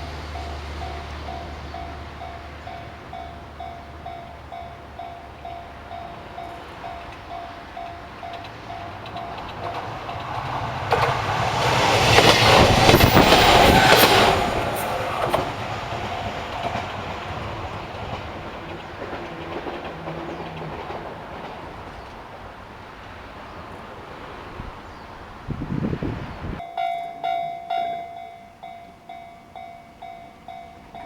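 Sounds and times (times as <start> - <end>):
train wheels clattering: 0.0 - 22.7.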